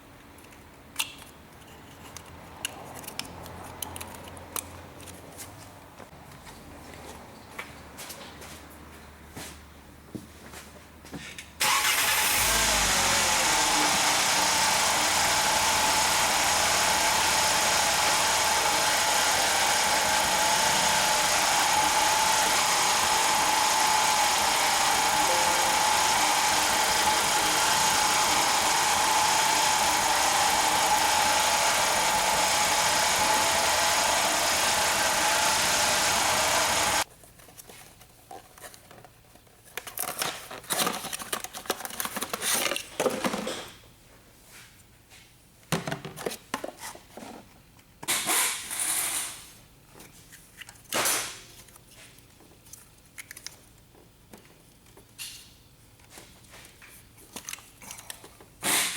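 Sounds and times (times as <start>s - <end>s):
car engine starting and idling: 11.6s - 37.0s.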